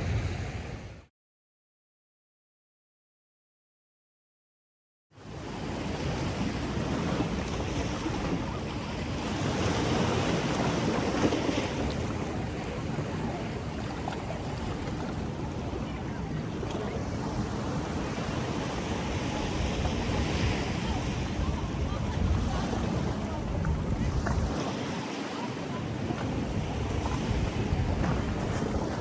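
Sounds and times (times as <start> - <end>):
ocean surf on beach: 0.0 - 1.1, 5.3 - 29.0
wind rumbling on microphone: 0.0 - 1.1, 6.0 - 29.0.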